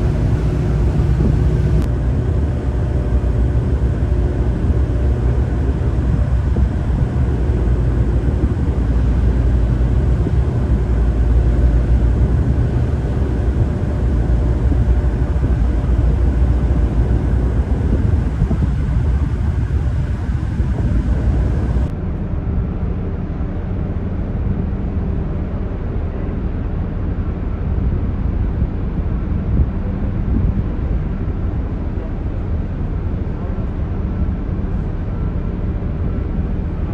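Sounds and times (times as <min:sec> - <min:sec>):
tugboat engine humming: 0:00.0 - 0:21.9
continuous wash of noise: 0:00.0 - 0:36.9.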